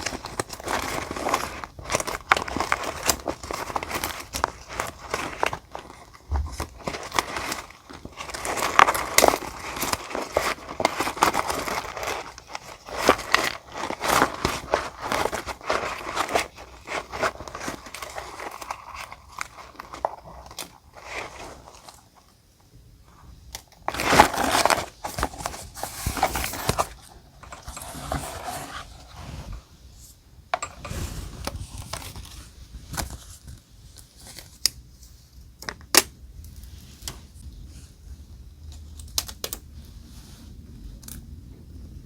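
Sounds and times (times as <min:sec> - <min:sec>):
paper rustling and tearing: 0:00.0 - 0:22.0, 0:23.9 - 0:29.6.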